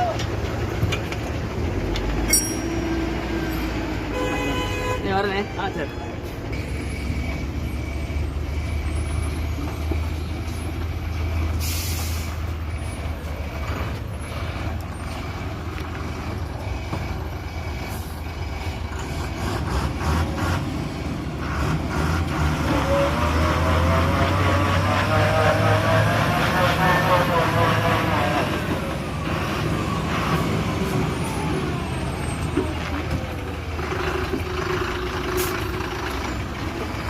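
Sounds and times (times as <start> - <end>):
diesel engine running: 0.0 - 4.8, 6.2 - 37.0.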